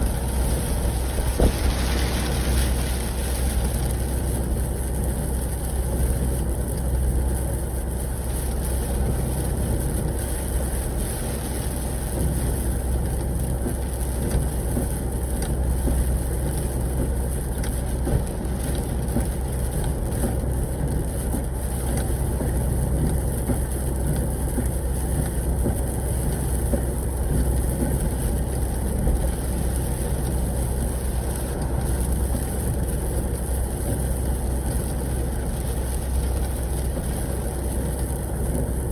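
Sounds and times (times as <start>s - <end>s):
truck engine drone: 0.0s - 15.7s
road noise: 0.0s - 38.9s.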